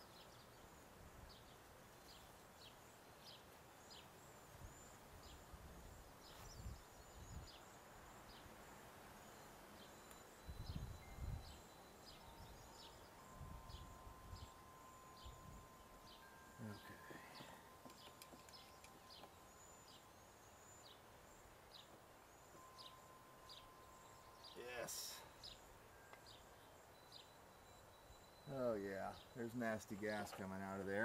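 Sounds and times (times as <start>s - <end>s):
faint high bird chirps: 9.2s - 31.0s.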